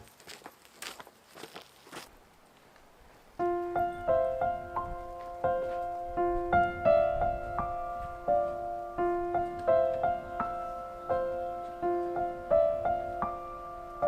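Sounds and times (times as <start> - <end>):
gentle piano music: 3.4 - 14.0.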